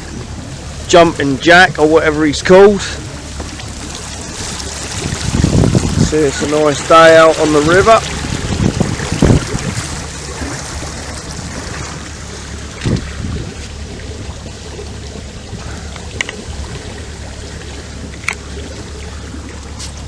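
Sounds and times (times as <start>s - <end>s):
boat engine humming: 0.0s - 20.0s
water washing past hull: 0.0s - 20.0s
faint clicks: 15.8s - 16.4s.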